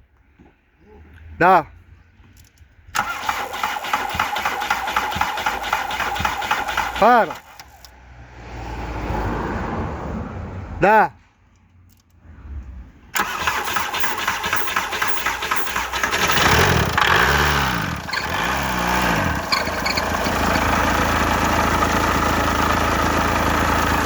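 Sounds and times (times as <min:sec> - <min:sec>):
van engine cranking and idling: 0:02.8 - 0:08.0, 0:13.0 - 0:24.0.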